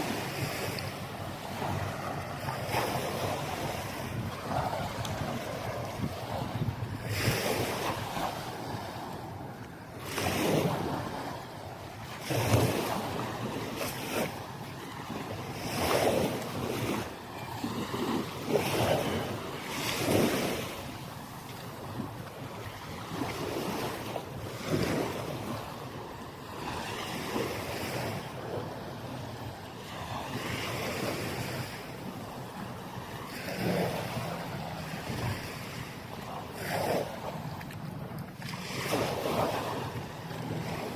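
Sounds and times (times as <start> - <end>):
waves washing onto beach: 0.0 - 40.9
wind buffeting microphone: 0.0 - 40.9.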